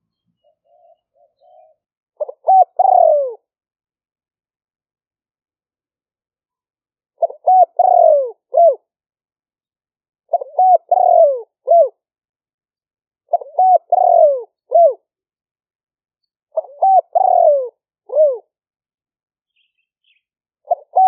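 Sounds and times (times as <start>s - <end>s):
dove cooing: 0.4s - 3.5s, 7.2s - 8.9s, 10.3s - 12.0s, 13.3s - 15.0s, 16.5s - 18.5s, 20.6s - 21.0s.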